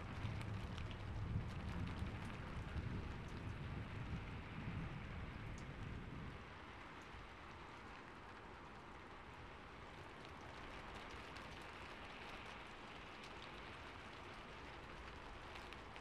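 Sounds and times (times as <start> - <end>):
raindrops tapping: 0.0 - 16.0
steady rain: 0.0 - 16.0.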